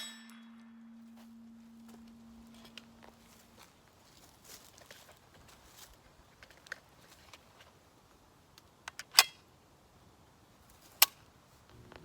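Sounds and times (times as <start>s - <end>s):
sharp metallic clack with ring: 0.0s - 2.9s.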